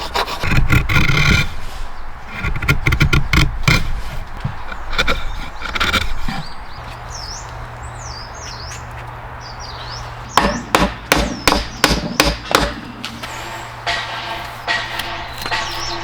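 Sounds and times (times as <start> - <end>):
sharp knocks on wood: 10.3 - 16.0.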